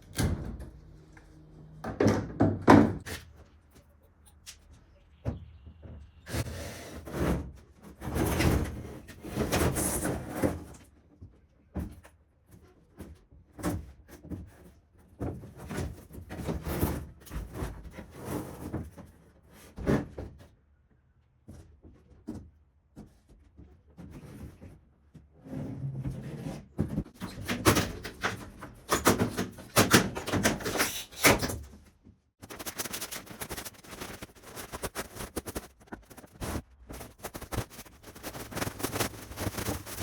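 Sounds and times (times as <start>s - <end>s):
scraping during demolition: 32.4s - 40.0s.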